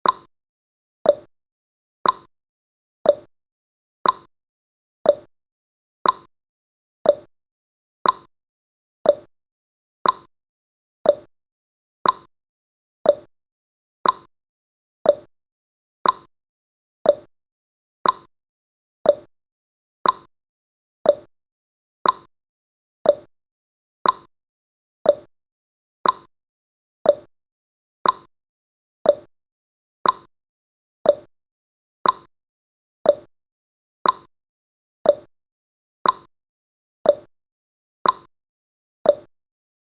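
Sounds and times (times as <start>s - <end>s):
countdown timer ticking: 5.1s - 5.3s, 7.1s - 7.3s, 9.1s - 9.3s, 11.1s - 11.3s, 13.1s - 13.3s, 15.1s - 15.3s, 17.1s - 17.3s, 19.1s - 19.3s, 21.1s - 21.3s, 23.0s - 23.3s, 24.0s - 24.3s, 25.1s - 25.3s, 27.1s - 27.3s, 28.0s - 28.3s, 29.1s - 29.3s, 30.0s - 30.3s, 31.1s - 31.3s, 32.0s - 32.3s, 33.1s - 33.3s, 34.0s - 34.3s, 35.1s - 35.3s, 36.0s - 36.3s, 37.1s - 37.3s, 38.0s - 38.3s, 39.1s - 39.3s.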